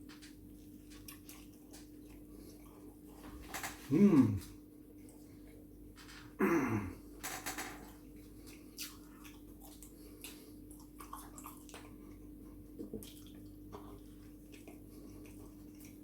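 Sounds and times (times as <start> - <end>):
faint steady hum: 0.0 - 16.0
chewing with mouth clicks: 0.5 - 3.2, 7.8 - 16.0.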